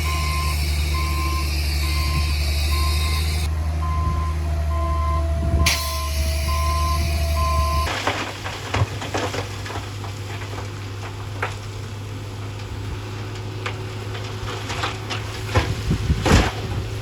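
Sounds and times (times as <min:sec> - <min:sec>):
heavy machine engine running: 0:00.0 - 0:17.0.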